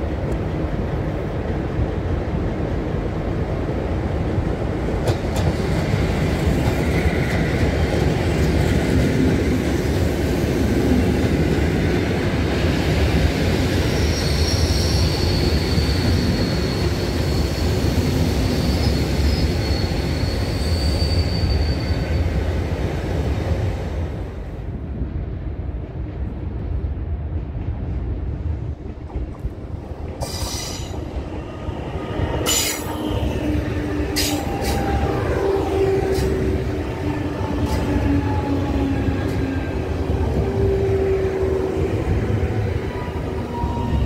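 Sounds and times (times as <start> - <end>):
train rail rumble: 0.0 - 44.0
metallic brake squeal: 18.6 - 22.3, 32.4 - 33.2, 34.2 - 35.2.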